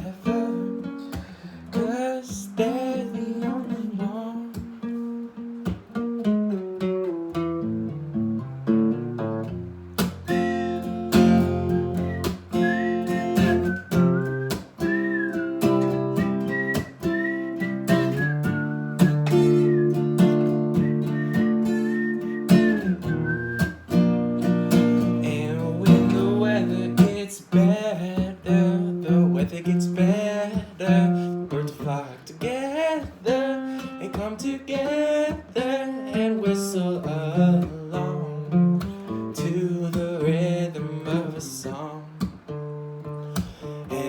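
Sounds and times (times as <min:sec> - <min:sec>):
acoustic guitar: 0:00.0 - 0:44.0
whistled melody: 0:10.3 - 0:25.1.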